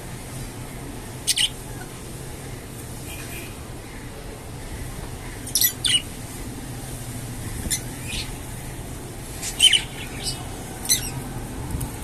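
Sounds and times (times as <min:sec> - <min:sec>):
steady low hum: 0:00.0 - 0:12.0
budgerigars chirping: 0:01.2 - 0:01.6, 0:05.4 - 0:06.1, 0:07.5 - 0:08.4, 0:09.4 - 0:11.2.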